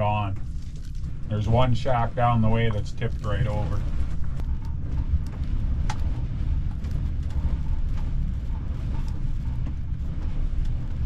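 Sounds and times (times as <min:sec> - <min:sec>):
storm wind buffeting microphone: 0:00.0 - 0:11.0.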